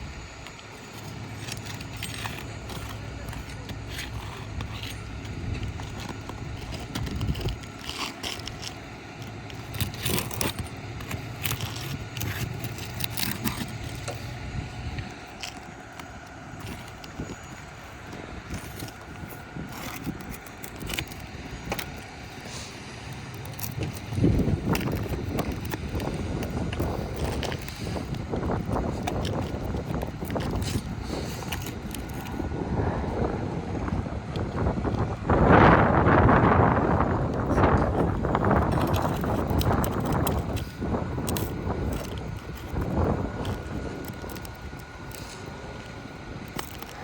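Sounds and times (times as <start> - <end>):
metal tool scraping nails and shingles: 0.4 - 14.4, 15.0 - 32.4, 36.9 - 47.0
low rumble: 9.5 - 44.6.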